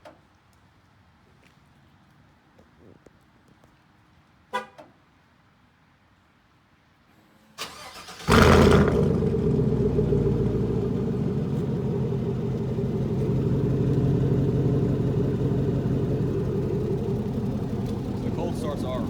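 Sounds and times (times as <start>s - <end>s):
engine starting and idling: 7.6s - 19.0s.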